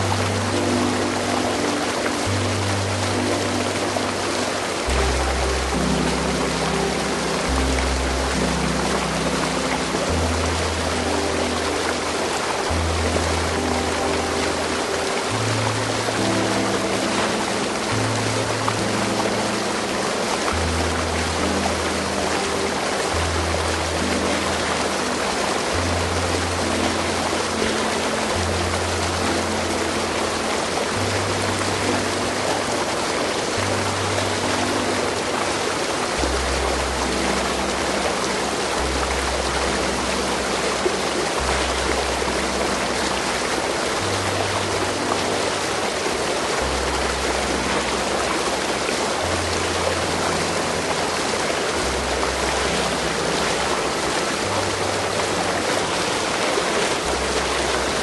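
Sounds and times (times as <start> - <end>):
soft background music: 0.0 - 58.0
stream water rushing: 0.0 - 58.0.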